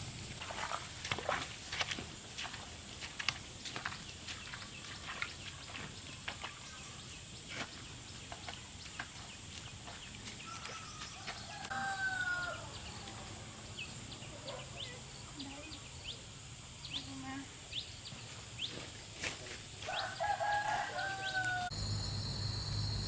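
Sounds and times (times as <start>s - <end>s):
rooster crowing: 10.4s - 12.8s, 19.8s - 21.9s.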